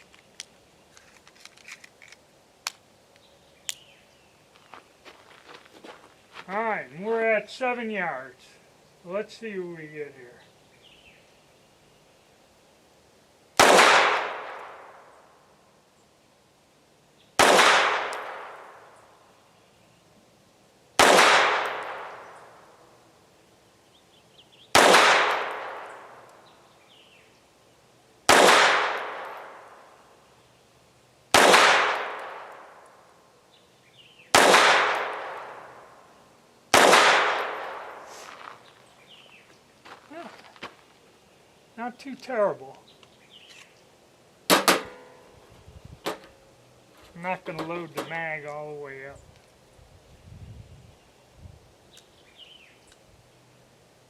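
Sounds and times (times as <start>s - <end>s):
pistol shots with echo: 13.6s - 15.1s, 17.4s - 18.9s, 21.0s - 22.5s, 24.8s - 26.2s, 28.3s - 29.8s, 31.3s - 32.8s, 34.3s - 35.9s, 36.7s - 38.1s.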